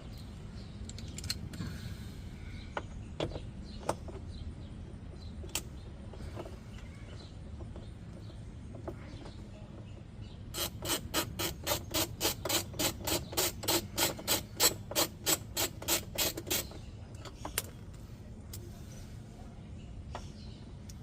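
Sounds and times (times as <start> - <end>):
hand ratchet clicking: 10.5 - 16.7.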